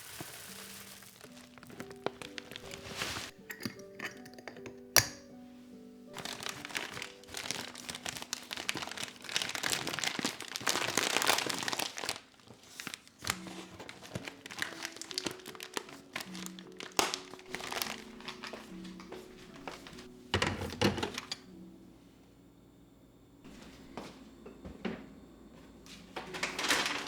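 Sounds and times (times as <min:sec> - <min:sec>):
crinkling and rustling: 0:00.0 - 0:21.6, 0:23.4 - 0:27.0
soft background music: 0:00.0 - 0:27.0.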